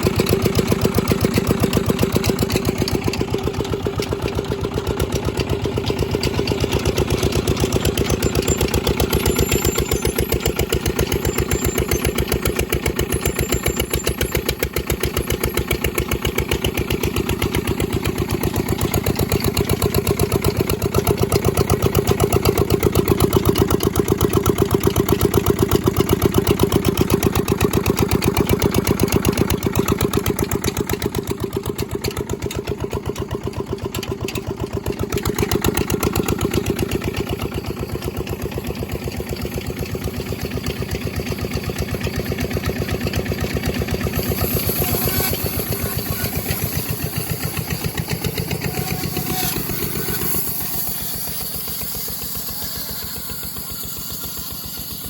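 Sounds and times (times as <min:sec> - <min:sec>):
diesel engine knocking: 0:00.0 - 0:50.8.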